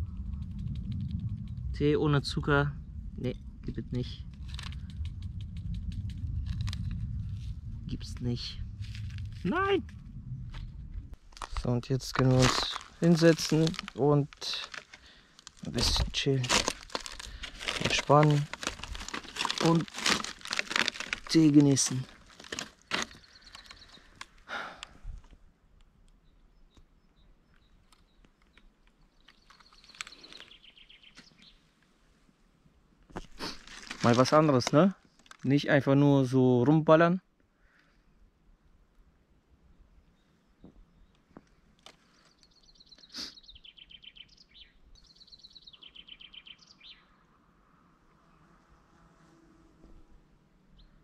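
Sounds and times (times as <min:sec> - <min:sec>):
rustle: 0:03.2 - 0:25.4, 0:27.6 - 0:36.4
songbird trilling: 0:42.5 - 0:47.1.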